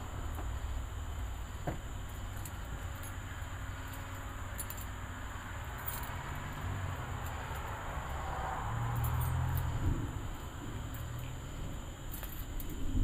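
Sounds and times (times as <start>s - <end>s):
faint scattered ticks: 0.2s - 13.0s
distant thunder rumbling: 9.7s - 10.8s.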